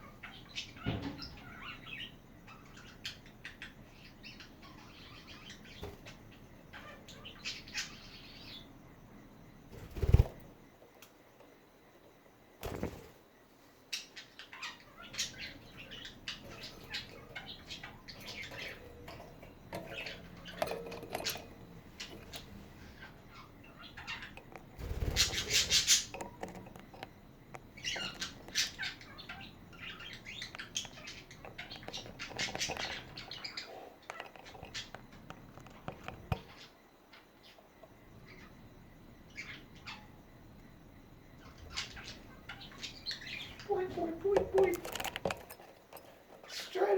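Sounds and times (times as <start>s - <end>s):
budgerigars chattering: 22.0s - 26.2s.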